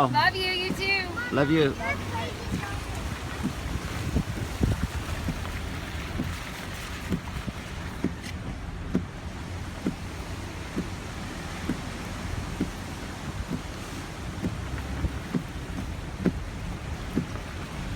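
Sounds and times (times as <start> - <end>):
vehicle rumble from inside: 0.0 - 17.9
soft knocking: 7.0 - 11.9, 12.6 - 17.6.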